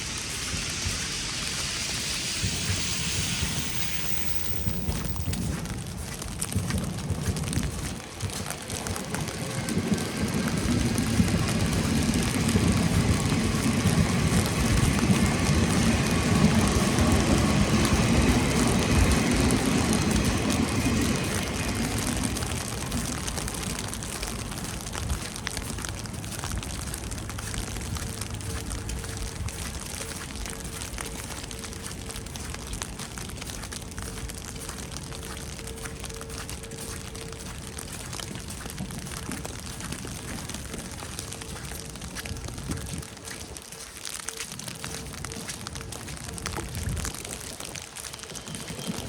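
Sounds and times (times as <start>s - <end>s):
falling rain hiss: 0.0s - 5.3s
vehicle passing on wet road: 0.0s - 49.0s.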